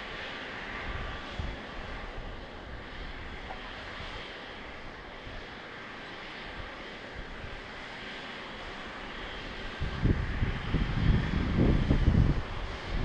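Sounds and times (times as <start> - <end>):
distant jet engines: 0.0 - 13.0
wind buffeting microphone: 9.5 - 13.0.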